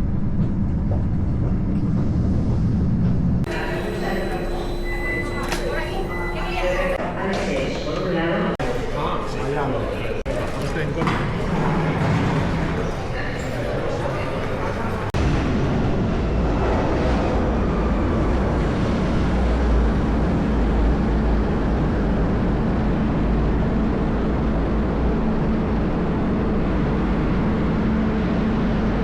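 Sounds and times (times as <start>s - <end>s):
faint hum: 2.0s - 7.8s.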